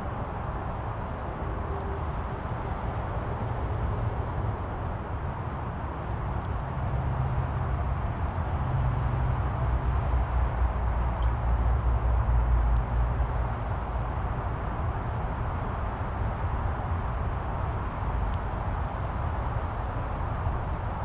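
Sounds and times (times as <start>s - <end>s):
songbirds chirping: 11.2s - 11.8s.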